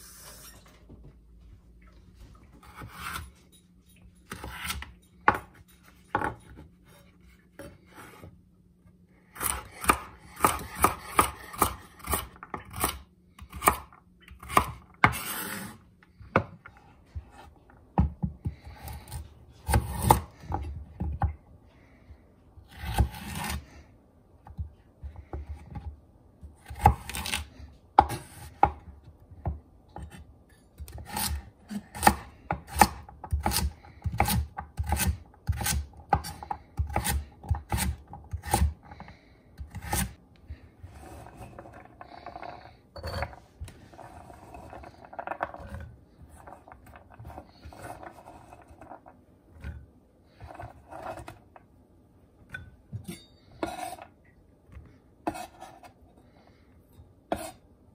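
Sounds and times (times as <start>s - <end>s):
knife chopping carrots on board: 9.4s - 15.7s, 30.9s - 40.2s.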